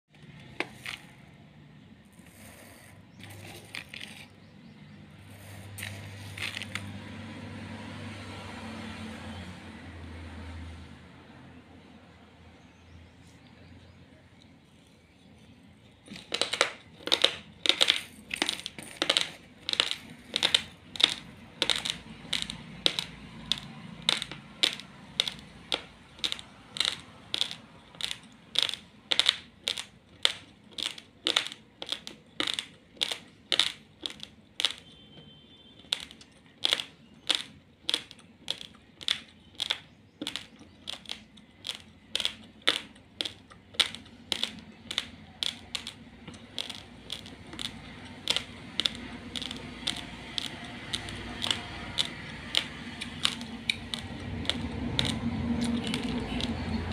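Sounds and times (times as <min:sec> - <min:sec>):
raw rice being chewed: 0:17.0 - 0:35.0, 0:35.8 - 0:56.9.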